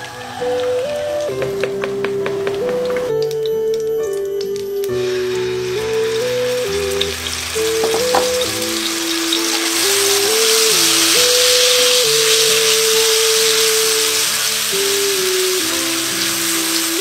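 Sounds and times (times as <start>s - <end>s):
background music: 0.0s - 17.0s
spice paste sizzling in oil: 4.5s - 17.0s.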